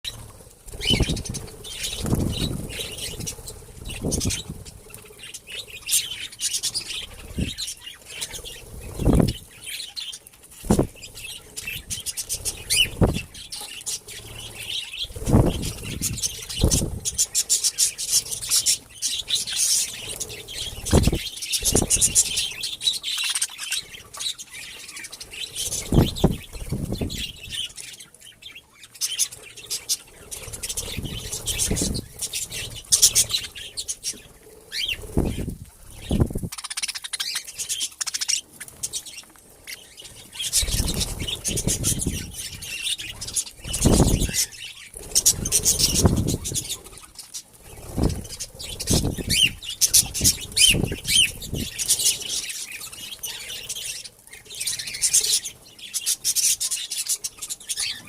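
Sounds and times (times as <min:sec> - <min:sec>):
wing flapping whooshes: 0:00.1 - 0:04.8, 0:10.6 - 0:11.1, 0:11.9 - 0:13.4, 0:14.2 - 0:17.2, 0:20.1 - 0:22.5, 0:25.6 - 0:27.4, 0:34.9 - 0:36.6, 0:40.5 - 0:44.4, 0:45.0 - 0:46.8, 0:47.6 - 0:52.1
budgerigars chirping: 0:00.1 - 0:58.0.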